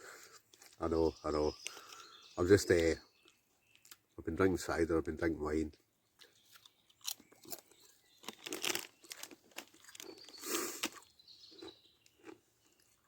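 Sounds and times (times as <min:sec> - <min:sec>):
crisps being crunched: 0:06.5 - 0:12.4.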